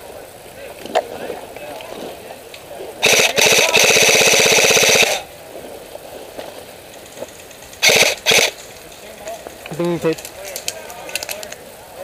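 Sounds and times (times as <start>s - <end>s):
airsoft gun firing bursts: 3.0s - 5.2s, 7.8s - 8.6s.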